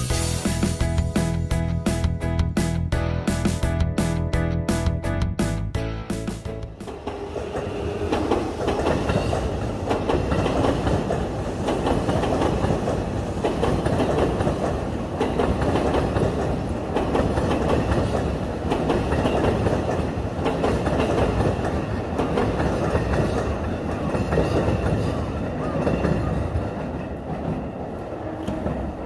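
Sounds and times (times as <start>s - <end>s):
electric train rumbling on rails: 0.0s - 29.0s
train wheels clacking over rail joints: 6.8s - 27.7s.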